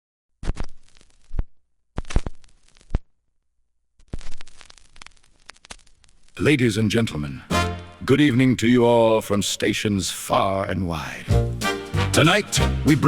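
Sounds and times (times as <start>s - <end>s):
radio static and crackle: 0.4s - 3.1s, 4.0s - 7.2s.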